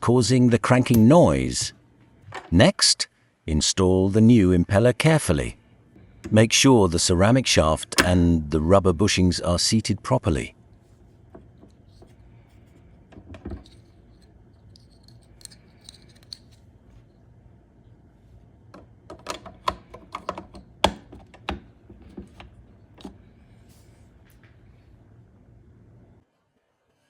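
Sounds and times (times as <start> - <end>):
sharp clicks and knocks: 18.7 - 23.2
plastic parts clicking and tapping: 18.8 - 23.2.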